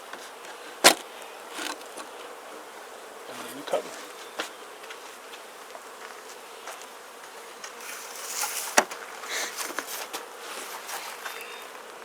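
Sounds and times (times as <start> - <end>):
wooden hive parts scraping: 0.0 - 2.6, 3.2 - 12.0
bees buzzing: 0.0 - 12.0
hive cover knocking: 8.4 - 10.3.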